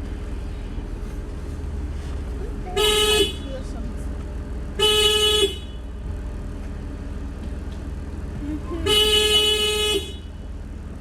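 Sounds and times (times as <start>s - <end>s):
steady low rumble: 0.0s - 5.0s, 5.6s - 9.6s
car horn tooting: 2.8s - 3.5s, 4.8s - 5.9s, 8.8s - 10.4s.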